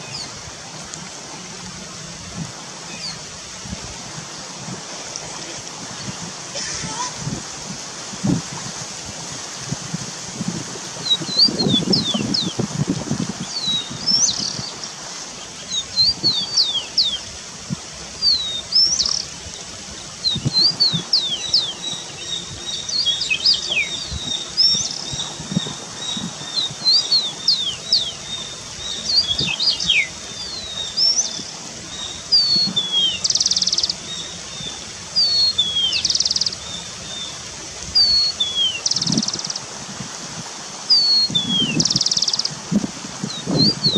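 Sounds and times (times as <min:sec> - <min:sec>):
birds whistling sliding notes: 0:13.4 - 0:17.3, 0:18.2 - 0:19.3, 0:20.0 - 0:37.4, 0:38.0 - 0:39.6, 0:40.9 - 0:42.5.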